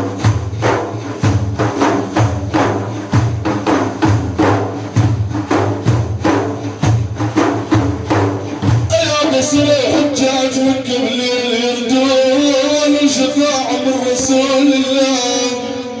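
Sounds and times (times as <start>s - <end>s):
frame drums with jingles: 0.0s - 11.0s.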